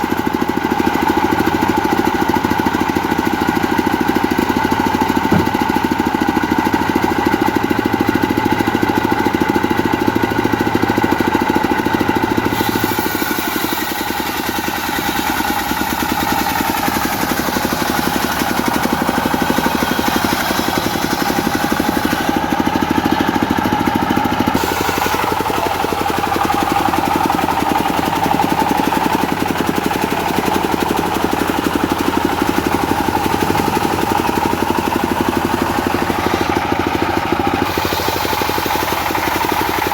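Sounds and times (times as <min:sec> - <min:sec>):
diesel engine running: 0:00.0 - 0:39.9
saw blade hissing through wood: 0:12.4 - 0:23.8, 0:24.4 - 0:39.9.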